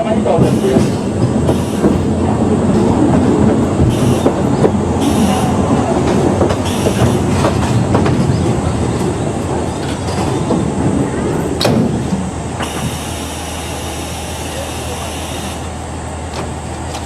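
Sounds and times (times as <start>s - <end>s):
train car rumbling on rails: 0.0s - 17.0s
wheel clicks over rail joints: 2.7s - 13.1s, 16.3s - 17.0s.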